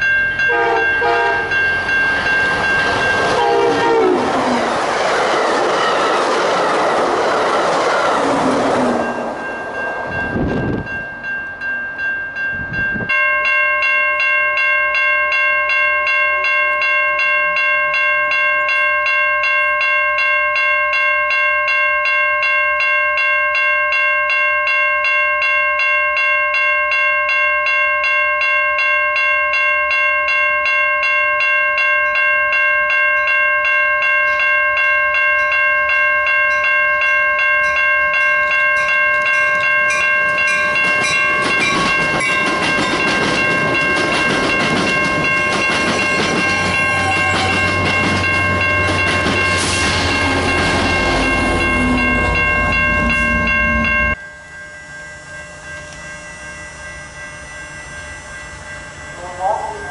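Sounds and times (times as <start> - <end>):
railroad crossing bell ringing: 0.0 - 59.9
train rushing past: 0.3 - 11.4, 40.2 - 54.2
train horn: 0.5 - 1.6, 3.4 - 4.6, 46.9 - 47.8.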